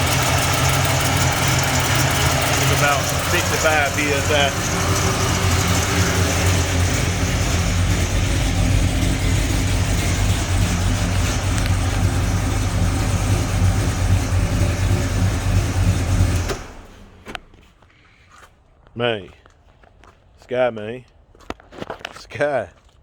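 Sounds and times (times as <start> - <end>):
car engine idling: 0.0 - 17.6.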